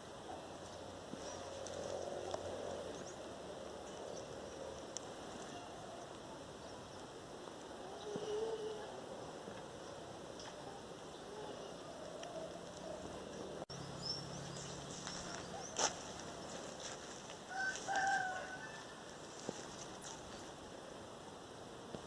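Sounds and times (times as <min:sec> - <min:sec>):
small birds chirping: 0:00.0 - 0:20.6
rooster crowing: 0:17.5 - 0:19.5.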